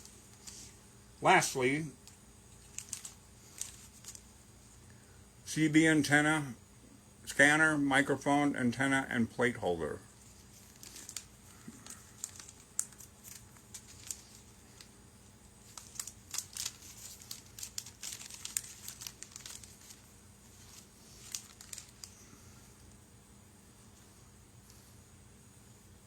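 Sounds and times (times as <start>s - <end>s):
plastic bags crinkling: 2.0s - 4.3s, 10.2s - 15.0s, 15.6s - 22.9s.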